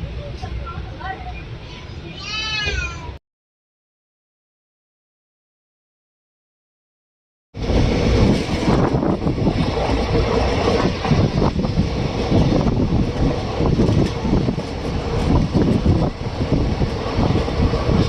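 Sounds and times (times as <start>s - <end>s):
train wheels rumbling on rails: 7.6s - 18.0s.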